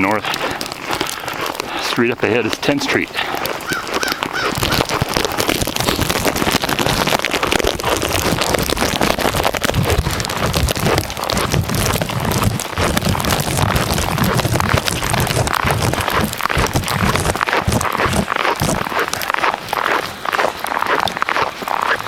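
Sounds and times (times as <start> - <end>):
wind on microphone: 3.7 - 19.2.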